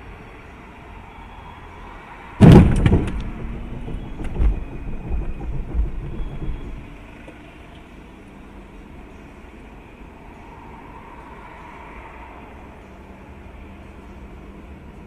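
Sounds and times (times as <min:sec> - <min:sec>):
steady road noise: 0:00.0 - 0:15.0
knocking and rumbling: 0:02.4 - 0:07.4
sharp cracks: 0:02.4 - 0:07.4
vehicle impact bang: 0:02.4 - 0:07.5.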